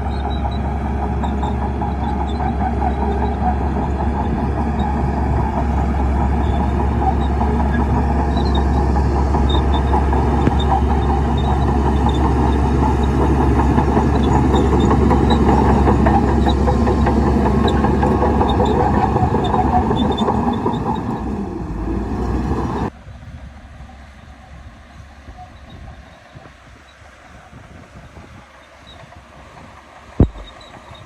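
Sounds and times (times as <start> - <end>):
steel tracks clattering: 0.0 - 22.9
bulldozer diesel engine droning: 0.0 - 31.0.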